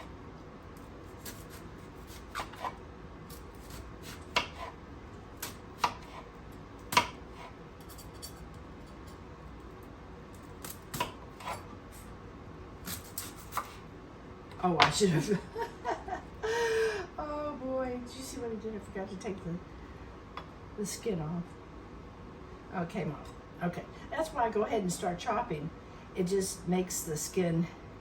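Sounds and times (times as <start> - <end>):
knife chopping on cutting board: 1.2 - 4.8, 5.4 - 6.3, 6.9 - 7.6, 10.6 - 11.6.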